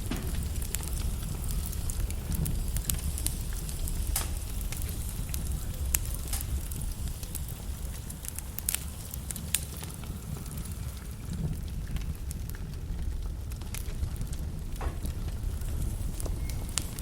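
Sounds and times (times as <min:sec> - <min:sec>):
log fire crackling: 0:00.0 - 0:17.0.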